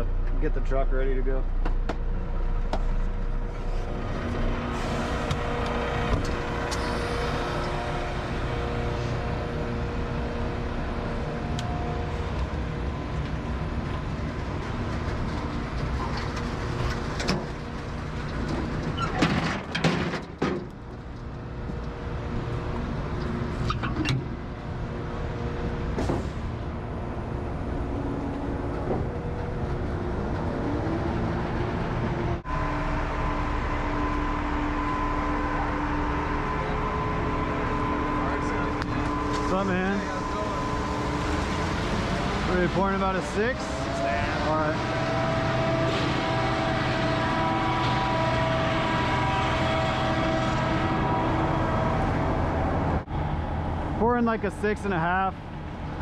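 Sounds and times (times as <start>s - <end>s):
diesel truck engine running: 0.0s - 19.0s, 24.2s - 56.0s
knocks and clatter: 14.6s - 21.8s.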